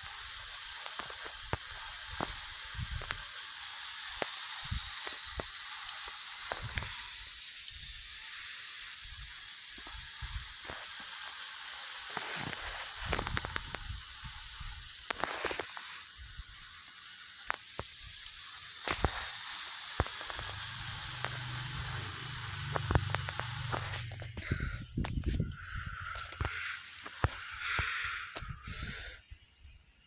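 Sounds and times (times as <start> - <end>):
cockpit air hiss: 0.0 - 30.0
low hum: 20.1 - 29.1.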